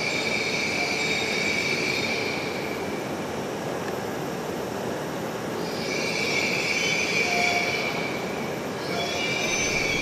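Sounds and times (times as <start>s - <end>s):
train rolling into a station: 7.2s - 10.0s
high brake squeal: 8.9s - 10.0s.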